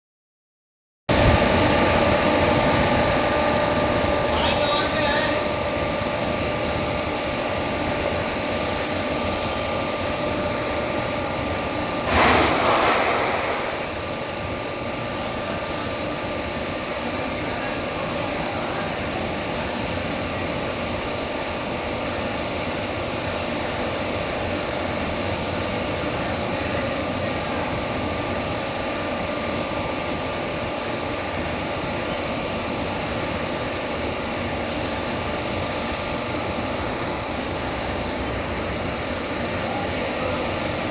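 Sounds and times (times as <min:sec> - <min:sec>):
loud hiss burst: 0:12.0 - 0:14.0.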